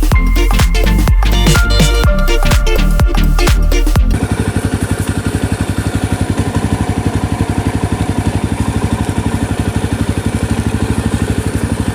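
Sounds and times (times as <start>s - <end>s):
motorcycle engine idling: 4.1s - 11.9s.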